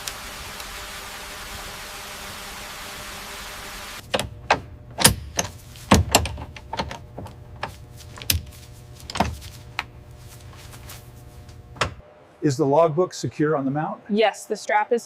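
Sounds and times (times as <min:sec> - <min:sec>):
steady hiss: 0:00.0 - 0:04.0.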